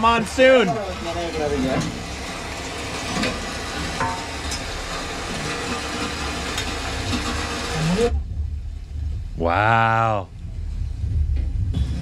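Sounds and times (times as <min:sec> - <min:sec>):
heavy rain falling: 0:00.0 - 0:12.0
low rumble: 0:07.7 - 0:12.0.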